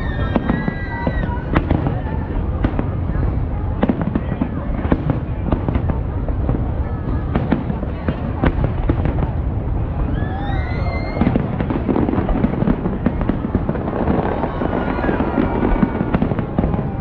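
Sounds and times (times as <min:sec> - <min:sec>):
rising firework whistle: 0:00.0 - 0:02.0, 0:10.0 - 0:17.0
fireworks bangs and crackles: 0:00.0 - 0:17.0.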